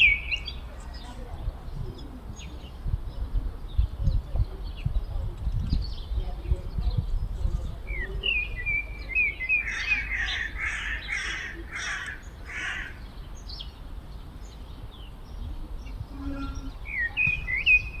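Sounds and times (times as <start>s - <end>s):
harsh bird calls: 7.9s - 13.8s, 14.5s - 18.0s
blackbird singing whistled phrases: 16.3s - 18.0s.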